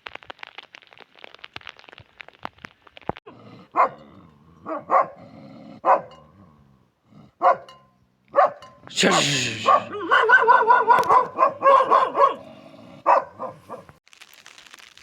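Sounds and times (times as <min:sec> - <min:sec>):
dog barking: 0:03.6 - 0:06.3, 0:07.4 - 0:14.0.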